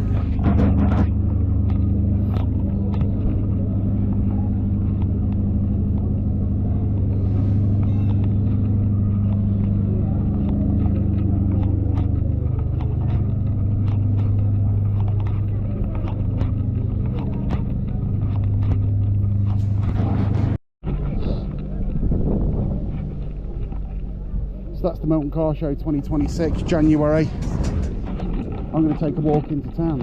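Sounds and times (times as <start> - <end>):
car engine idling: 1.1 - 20.6.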